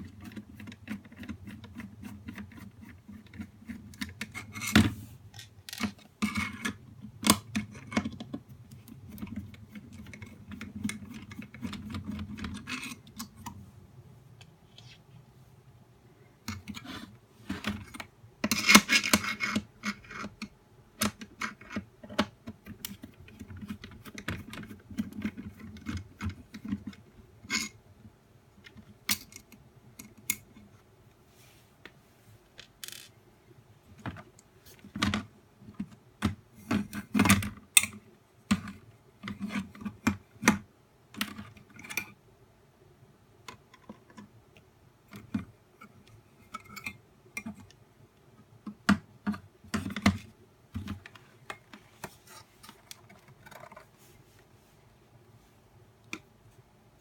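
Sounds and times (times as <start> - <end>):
plastic parts clicking and tapping: 0.0 - 13.6, 17.5 - 27.8, 32.6 - 33.1, 33.9 - 42.2, 43.4 - 47.8, 48.4 - 53.9.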